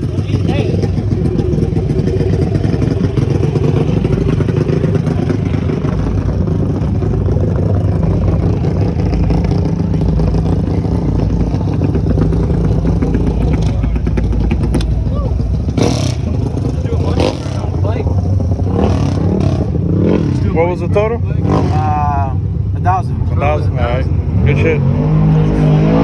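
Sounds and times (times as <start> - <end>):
mini bike engine running: 0.0 - 20.2.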